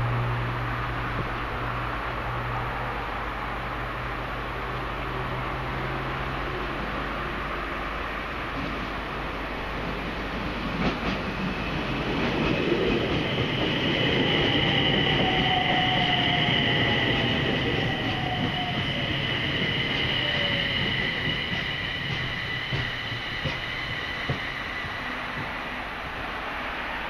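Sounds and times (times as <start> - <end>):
train wheels rumbling: 0.0 - 27.0
high brake squeal: 12.6 - 25.4.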